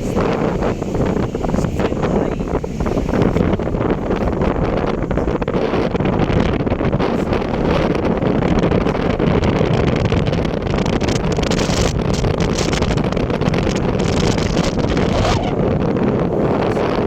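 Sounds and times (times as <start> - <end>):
vehicle road noise: 0.0 - 17.0
wind buffeting microphone: 0.0 - 17.0.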